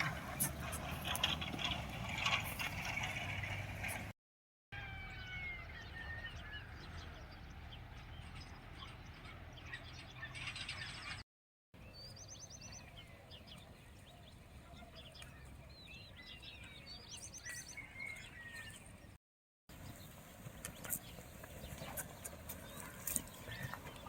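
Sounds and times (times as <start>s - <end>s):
birds chirping and trilling: 0.0s - 4.1s, 4.8s - 11.2s, 11.8s - 24.0s.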